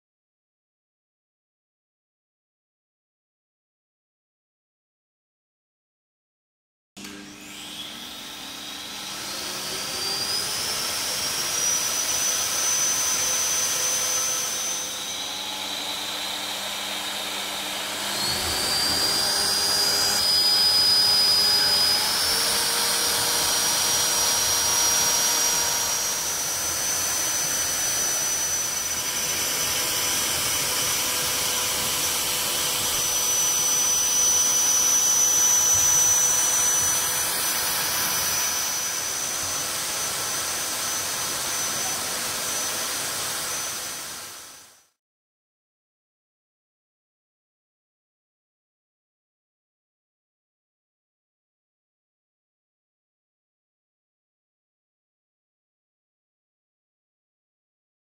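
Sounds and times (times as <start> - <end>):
vacuum cleaner motor whining: 7.0 - 44.8.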